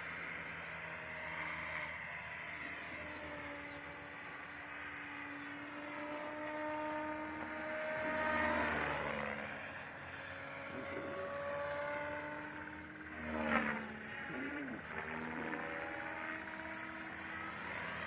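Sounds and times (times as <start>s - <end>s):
model helicopter motor and rotor whine: 0.0s - 18.0s.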